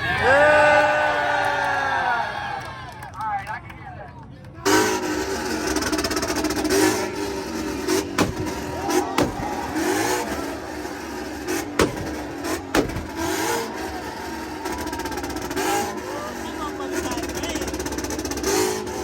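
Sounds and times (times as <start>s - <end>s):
car engine revving: 4.7s - 19.0s
sharp cracks: 5.6s - 15.7s.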